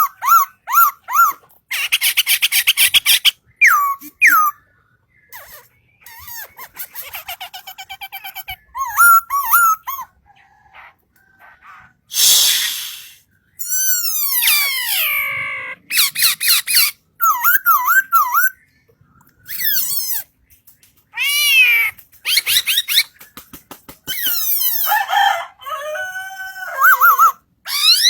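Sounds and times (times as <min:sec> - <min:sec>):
bird calling: 0:05.3 - 0:13.2.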